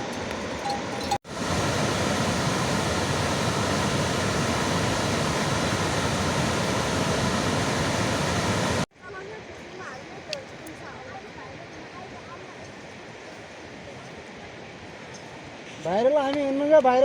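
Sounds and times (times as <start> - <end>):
heavy rain hiss: 0.0 - 9.8.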